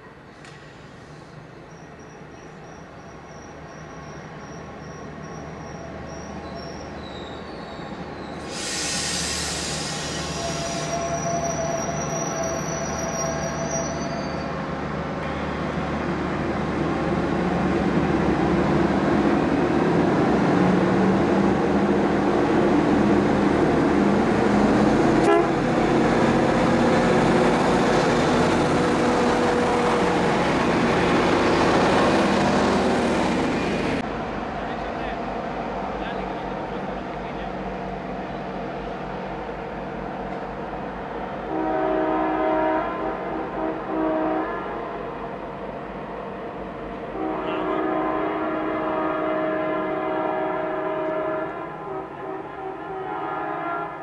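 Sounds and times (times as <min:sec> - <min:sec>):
passenger train passing: 0:00.0 - 0:54.0
hiss burst: 0:08.4 - 0:11.0
train horn: 0:10.3 - 0:13.6, 0:25.2 - 0:25.6, 0:41.4 - 0:45.0, 0:47.1 - 0:54.0.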